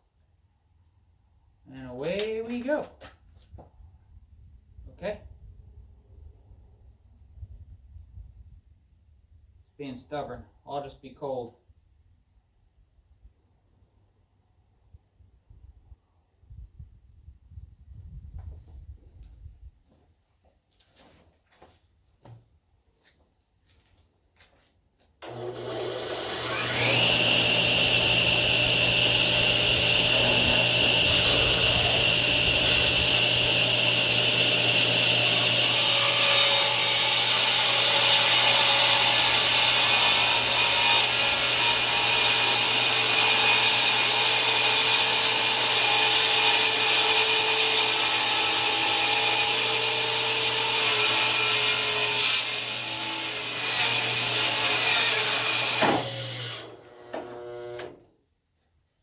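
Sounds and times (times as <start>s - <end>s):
saw blade cutting wood: 25.2s - 56.7s
table saw spinning up whine: 25.2s - 57.8s.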